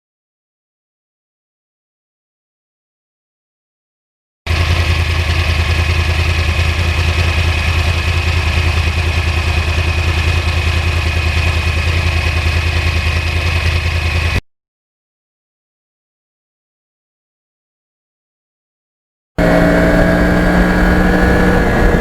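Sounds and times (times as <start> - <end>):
motorcycle engine idling: 4.5 - 14.4.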